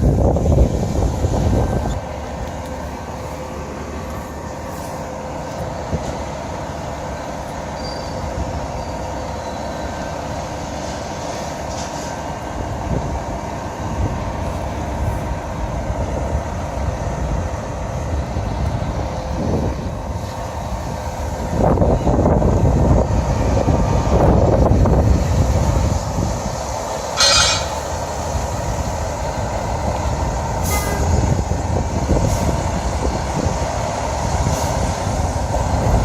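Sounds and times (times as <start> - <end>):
engine noise: 0.0 - 36.0
street noise: 0.0 - 36.0
fire engine horn: 27.2 - 27.9, 30.6 - 31.4.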